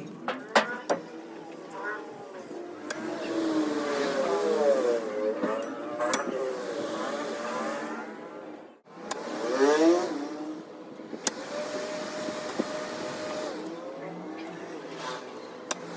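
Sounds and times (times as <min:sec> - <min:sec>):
small electric motor whining: 0:00.7 - 0:08.4, 0:11.2 - 0:15.9.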